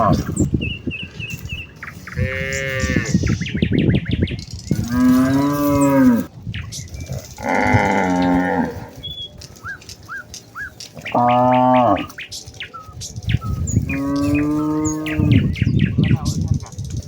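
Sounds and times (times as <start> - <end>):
cows mooing: 0.0 - 0.4, 1.9 - 3.4, 4.7 - 6.3, 7.1 - 9.0, 11.0 - 12.2, 13.8 - 15.6.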